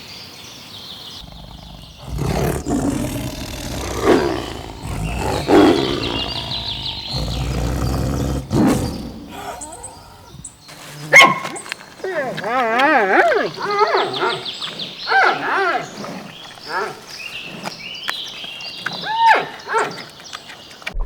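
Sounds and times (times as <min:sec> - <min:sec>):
large animal low rough calls: 0:01.2 - 0:10.5.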